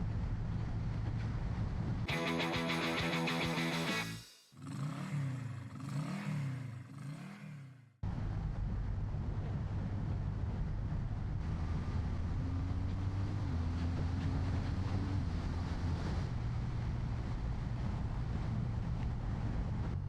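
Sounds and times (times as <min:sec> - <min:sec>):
wind and road noise: 0:00.0 - 0:07.4, 0:08.0 - 0:20.0
motorcycle engine cruising: 0:00.0 - 0:20.0
background music: 0:02.1 - 0:04.2.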